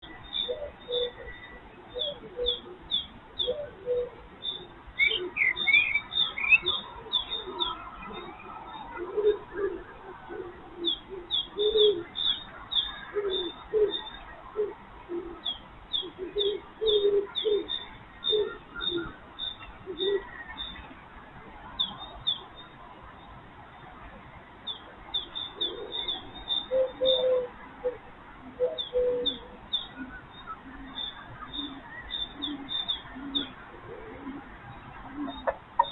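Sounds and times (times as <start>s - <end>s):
small birds chirping: 0.0s - 9.9s, 10.8s - 14.7s, 24.6s - 35.9s
cuckoo call: 0.1s - 20.5s, 25.2s - 35.9s
low cooing notes: 3.5s - 5.7s, 6.6s - 12.1s, 28.6s - 35.9s.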